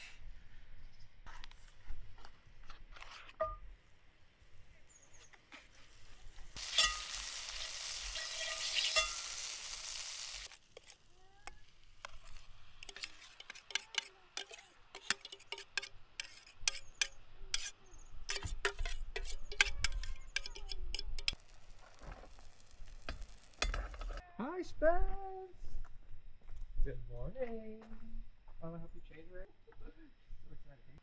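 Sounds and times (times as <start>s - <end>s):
hot pan sizzling: 5.7s - 24.2s
utensil tapping a pan: 12.8s - 17.7s, 18.3s - 21.4s.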